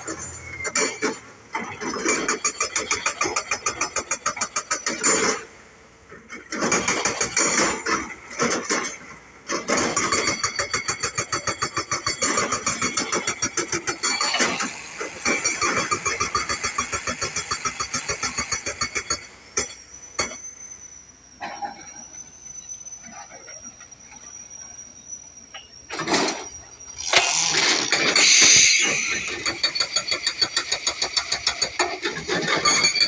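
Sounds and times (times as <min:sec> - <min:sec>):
rock drill hammering: 0:11.2 - 0:19.7, 0:27.0 - 0:32.9.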